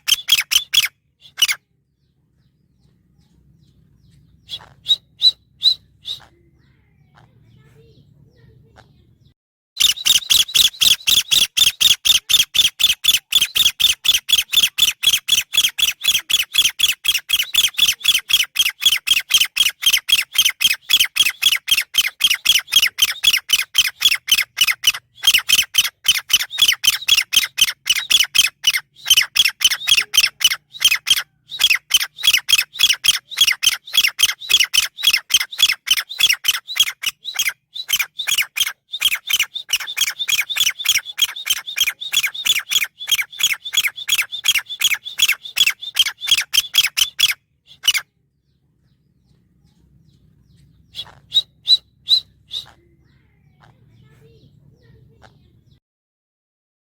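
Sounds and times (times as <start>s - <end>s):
bird giving sharp loud calls: 0.0s - 1.6s, 9.8s - 48.1s, 50.8s - 54.1s.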